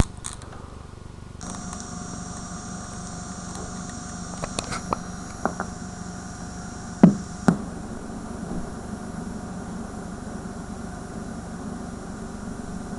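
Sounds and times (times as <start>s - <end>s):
tape static buzzing hum with hiss: 0.0s - 12.9s
sharp clicks and pops: 1.4s - 5.8s.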